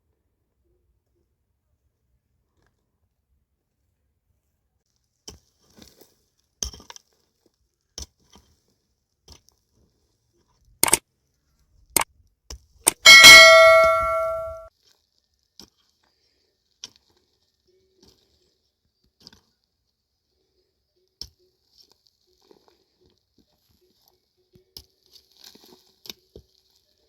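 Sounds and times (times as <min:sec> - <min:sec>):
sharp knocks: 0:12.9 - 0:14.6
metal object struck ringing: 0:12.9 - 0:14.7.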